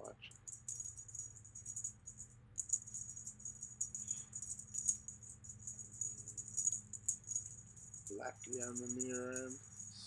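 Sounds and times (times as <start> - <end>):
faint low hum: 0.0 - 10.0
cat toy jingling rattle: 0.3 - 10.0.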